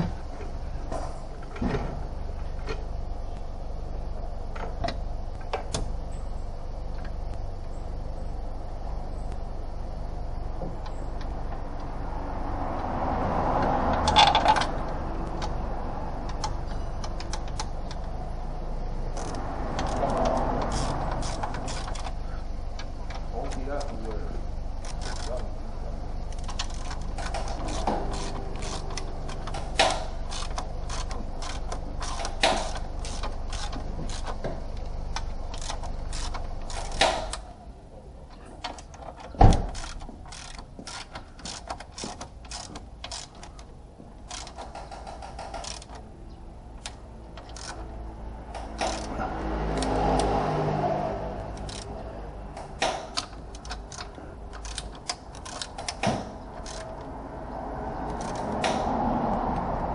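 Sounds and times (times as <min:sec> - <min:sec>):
metallic clicks and knocks of tools: 0:13.6 - 0:15.6, 0:16.2 - 0:18.2, 0:19.1 - 0:24.1, 0:24.8 - 0:25.6, 0:26.3 - 0:37.5, 0:38.3 - 0:46.1, 0:46.8 - 0:50.4, 0:51.4 - 0:57.2, 0:57.9 - 0:59.7.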